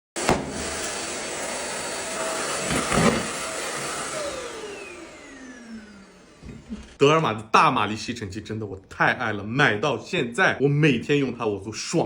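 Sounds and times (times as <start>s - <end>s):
vacuum cleaner running: 0.2s - 7.0s.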